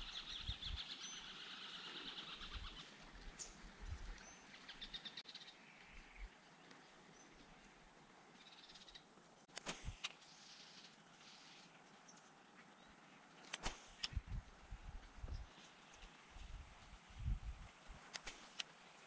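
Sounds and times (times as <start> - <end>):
birds trilling and chirping: 0.0 - 9.2.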